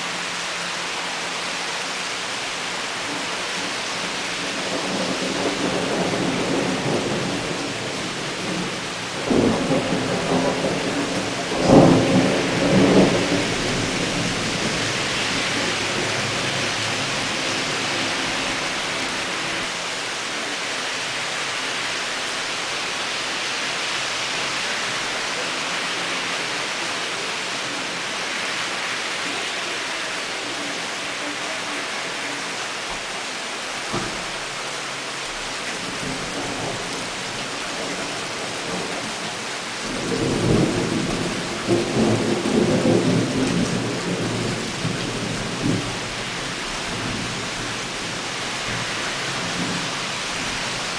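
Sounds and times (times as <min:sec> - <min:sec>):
torrential rain pouring: 0:00.0 - 0:50.9
thunder rumbling: 0:02.9 - 0:19.8, 0:35.4 - 0:50.9.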